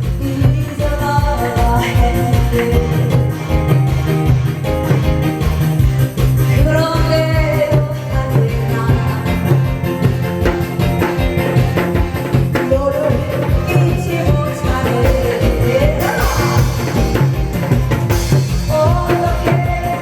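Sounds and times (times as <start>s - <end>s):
person singing folk song: 0.0s - 4.6s, 6.4s - 10.1s, 11.6s - 17.6s, 18.5s - 20.0s
traditional drums beating: 0.0s - 20.0s.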